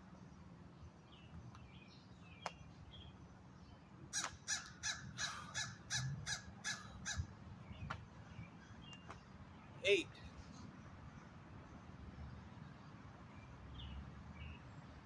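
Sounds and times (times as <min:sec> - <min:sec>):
bird calling rapidly: 0:04.1 - 0:07.3.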